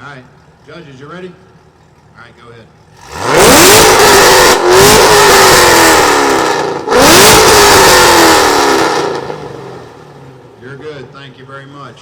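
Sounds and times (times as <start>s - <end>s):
car engine revving hard: 3.0s - 10.6s.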